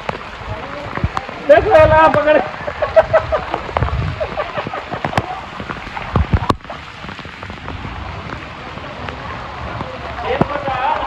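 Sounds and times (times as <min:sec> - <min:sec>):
rain falling and splashing: 0:00.0 - 0:11.0.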